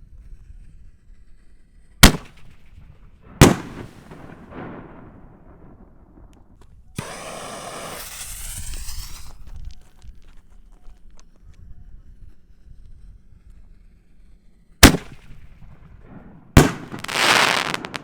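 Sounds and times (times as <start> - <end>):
firework bangs with echo: 2.0 - 2.5, 3.3 - 6.1, 7.0 - 9.3, 14.8 - 18.0
firework hissing crackle: 3.4 - 4.8, 7.0 - 9.8, 16.6 - 18.0.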